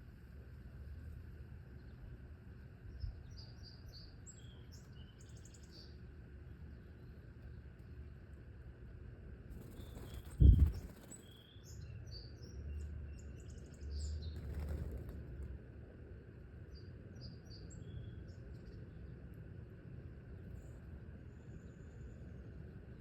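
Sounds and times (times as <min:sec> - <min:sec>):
small birds chirping: 0:02.8 - 0:06.1, 0:09.5 - 0:15.5, 0:16.6 - 0:19.4
wind rumble on microphone: 0:02.9 - 0:03.7, 0:09.5 - 0:15.8.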